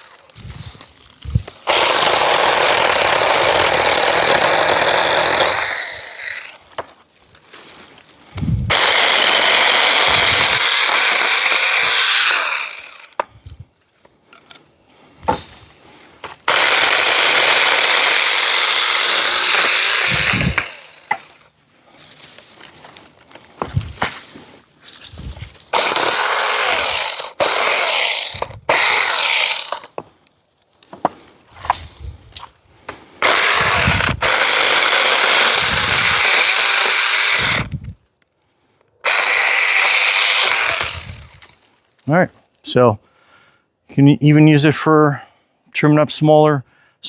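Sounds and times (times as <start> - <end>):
electric chainsaw cutting branches: 1.4 - 6.6, 8.7 - 13.2, 16.4 - 21.4, 25.7 - 30.0, 33.2 - 38.0, 39.0 - 41.5.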